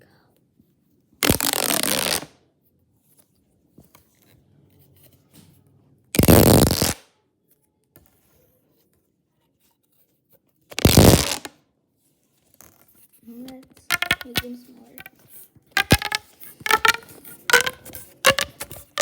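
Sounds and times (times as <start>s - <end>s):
plastic pop tube crackling pops: 1.2s - 2.3s, 6.2s - 7.0s, 10.7s - 11.5s, 13.7s - 19.0s
plastic handling noise: 12.4s - 19.0s.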